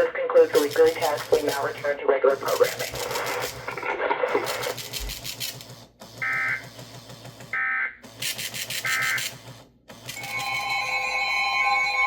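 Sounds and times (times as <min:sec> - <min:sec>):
steady warning alarm tone: 0:06.2 - 0:06.6, 0:07.5 - 0:08.0, 0:08.6 - 0:09.3, 0:10.1 - 0:12.0.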